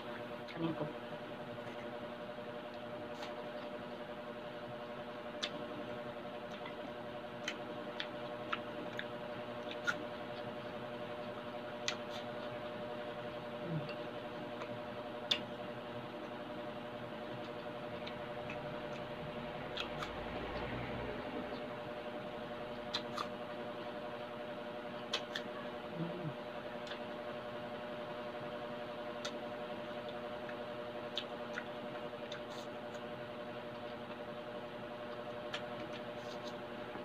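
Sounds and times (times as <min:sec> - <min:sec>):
steady low hum: 0:00.0 - 0:37.0
chewing crisp apple: 0:01.5 - 0:04.3, 0:04.9 - 0:37.0.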